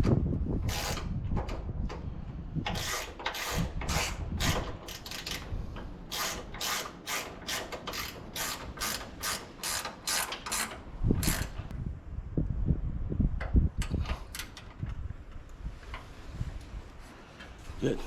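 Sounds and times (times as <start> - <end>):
ratchet wrench clicking: 2.7 - 5.5, 6.1 - 11.7.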